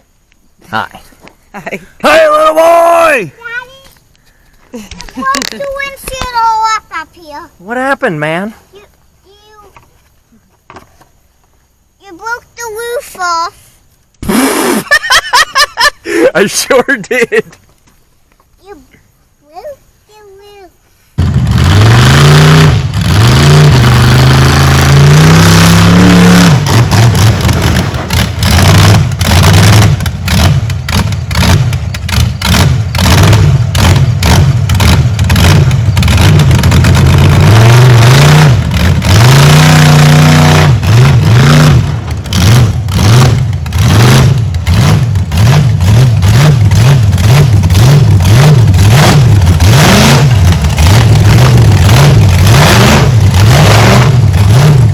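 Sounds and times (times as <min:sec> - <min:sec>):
truck engine revving: 0:14.2 - 0:15.6, 0:21.2 - 0:54.9
clatter: 0:21.2 - 0:54.9.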